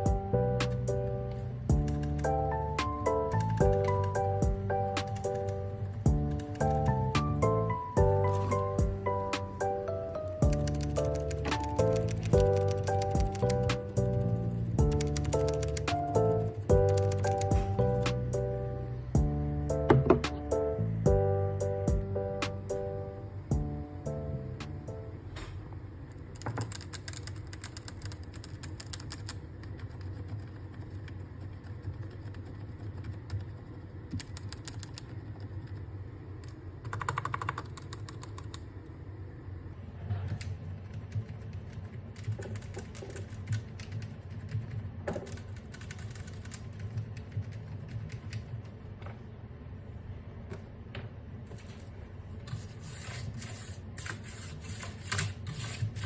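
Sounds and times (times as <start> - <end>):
mechanical keyboard typing: 1.7 - 18.4, 26.4 - 35.9, 36.8 - 38.7, 40.4 - 48.6.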